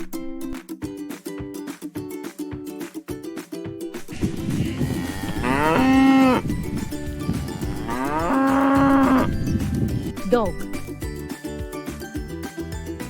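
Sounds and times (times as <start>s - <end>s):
cow mooing: 4.6s - 6.5s, 7.3s - 9.4s.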